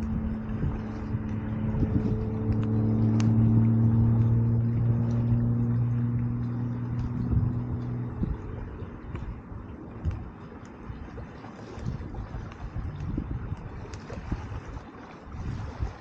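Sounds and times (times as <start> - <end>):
campfire crackling: 0.0 - 11.2
engine humming: 0.0 - 15.3.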